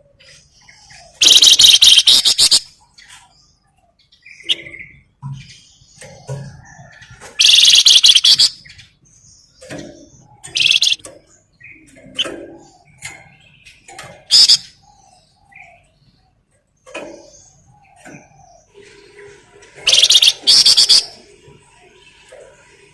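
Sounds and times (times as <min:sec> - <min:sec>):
bird chirps and calls: 0:00.0 - 0:22.5
songbird buzzing trills: 0:07.4 - 0:08.5, 0:19.9 - 0:21.1.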